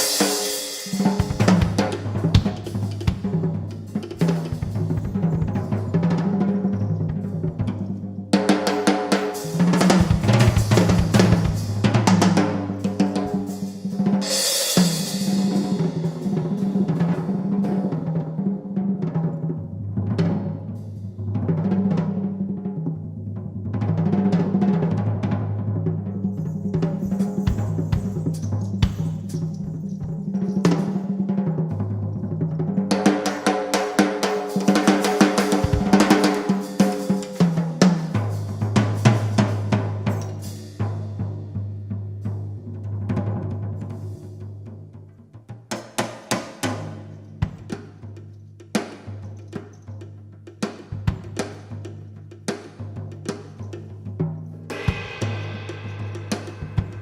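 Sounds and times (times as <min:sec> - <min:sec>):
cymbal crash: 0:00.0 - 0:05.7, 0:13.3 - 0:16.7, 0:54.7 - 0:57.0
live band instrumental: 0:00.0 - 0:07.6, 0:08.8 - 0:17.8, 0:33.0 - 0:38.1, 0:54.7 - 0:57.0
drum kit rolls and fills: 0:00.0 - 0:44.9, 0:45.5 - 0:57.0.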